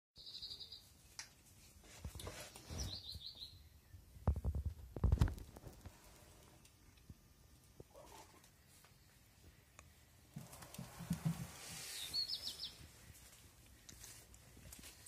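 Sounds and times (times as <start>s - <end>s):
rustling: 10.3s - 15.0s.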